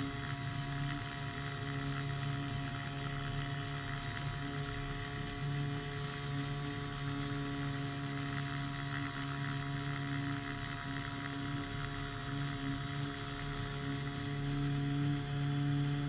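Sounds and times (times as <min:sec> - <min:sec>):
small engine droning: 0:00.0 - 0:16.0.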